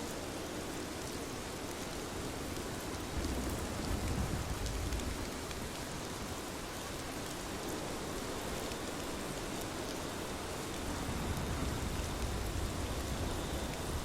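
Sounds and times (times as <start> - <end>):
rain falling on a surface: 0.0 - 14.0.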